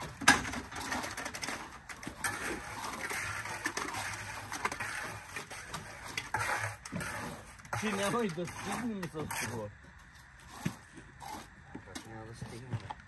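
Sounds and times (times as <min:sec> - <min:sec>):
concrete scraping and shuffling: 0:00.0 - 0:13.0.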